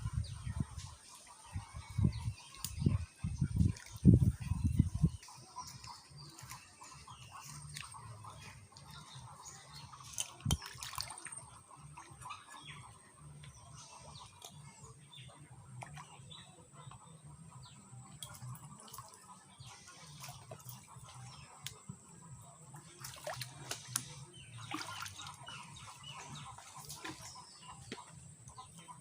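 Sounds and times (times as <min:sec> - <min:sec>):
water splashing and dripping: 0:02.1 - 0:12.4, 0:18.1 - 0:22.0, 0:22.7 - 0:28.8.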